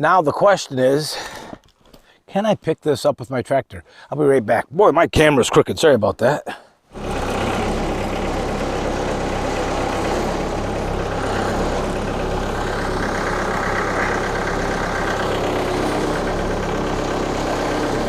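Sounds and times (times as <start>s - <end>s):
tractor diesel engine running: 6.9s - 18.0s.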